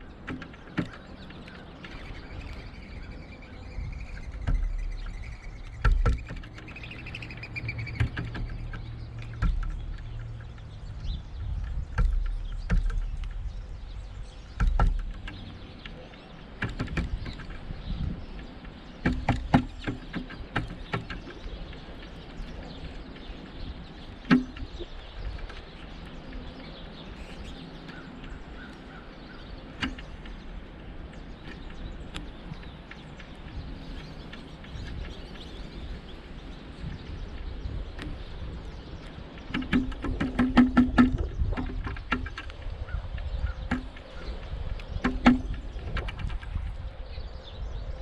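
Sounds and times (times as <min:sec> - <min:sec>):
woodpecker pecking at feeder: 0:00.2 - 0:26.4, 0:39.0 - 0:46.4.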